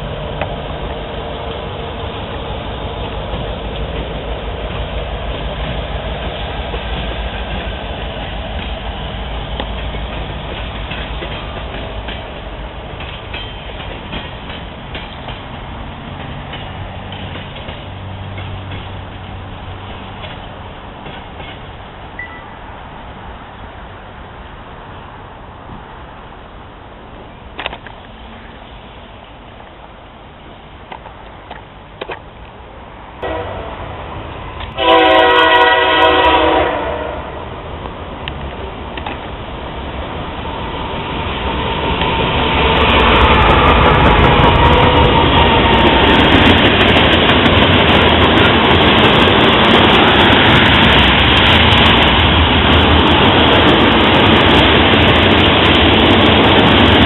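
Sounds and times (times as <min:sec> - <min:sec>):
wheels clicking over rail joints: 0:00.0 - 0:22.6, 0:26.9 - 0:32.9, 0:37.8 - 0:57.0
freight train cars rumbling: 0:00.0 - 0:57.0
locomotive air horn chord: 0:33.2 - 0:33.9, 0:34.8 - 0:37.4.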